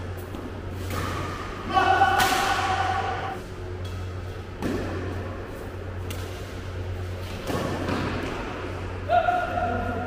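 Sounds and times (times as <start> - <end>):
steady low hum: 0.0 - 10.0
racket hitting shuttlecock: 7.3 - 8.6.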